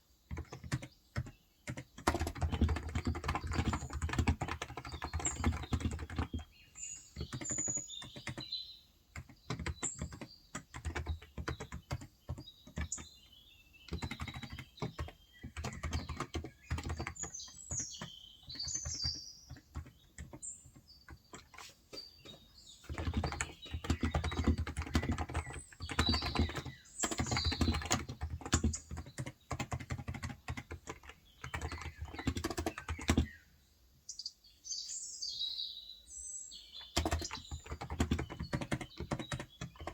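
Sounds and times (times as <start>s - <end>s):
small birds chirping: 0.0s - 39.9s
typing on a keyboard: 0.3s - 21.7s, 22.8s - 33.4s, 36.8s - 39.9s.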